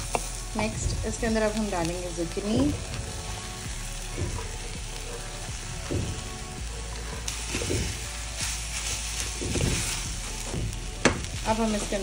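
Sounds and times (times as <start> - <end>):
vegetables sizzling in oil: 0.0 - 12.0
wooden spatula scraping pot: 6.9 - 10.6.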